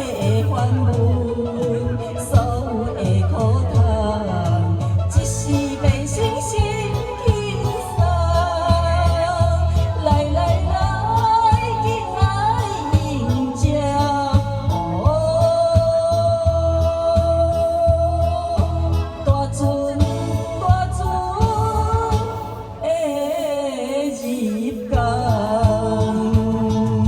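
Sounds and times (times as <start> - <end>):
backing track with steady beat: 0.0 - 27.0
person singing: 0.0 - 27.0.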